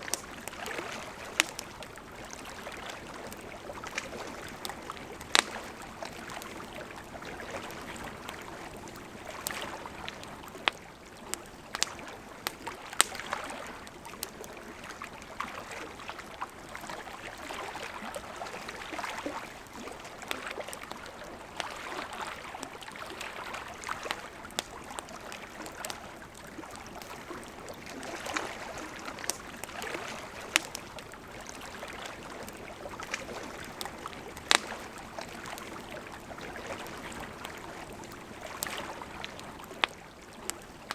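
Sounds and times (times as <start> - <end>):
wood fire crackling and popping: 0.0 - 15.1, 23.8 - 40.9
river flowing: 0.0 - 40.9.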